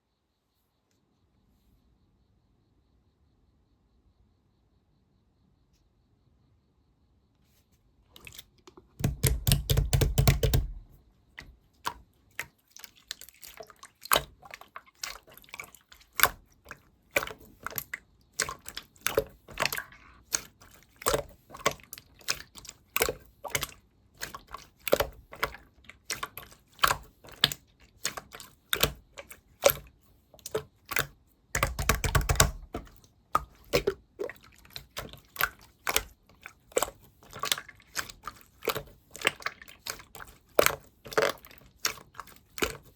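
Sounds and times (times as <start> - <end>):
slime squishing and popping: 9.0 - 10.9, 16.0 - 36.1.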